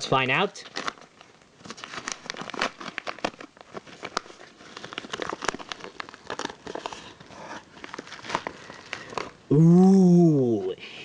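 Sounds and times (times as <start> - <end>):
package wrapping crackling: 0.5 - 9.5.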